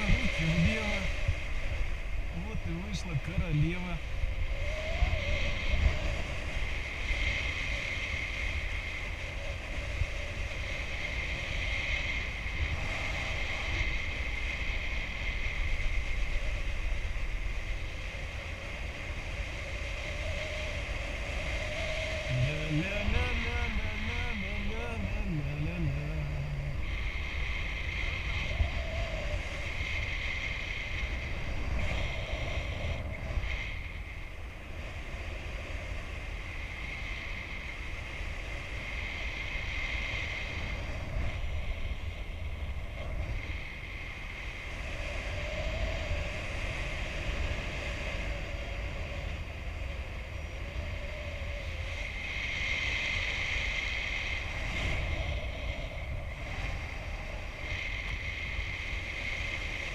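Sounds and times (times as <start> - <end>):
wind buffeting microphone: 0.0 - 59.9
faint wavering whistle: 4.5 - 6.0.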